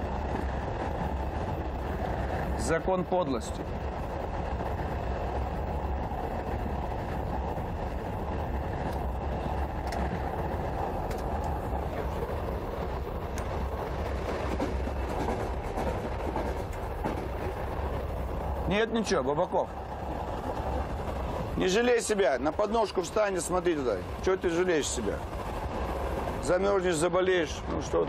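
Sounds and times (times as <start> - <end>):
train rumble and clatter: 0.0 - 28.0
faint clicks: 9.8 - 10.2, 11.0 - 11.6.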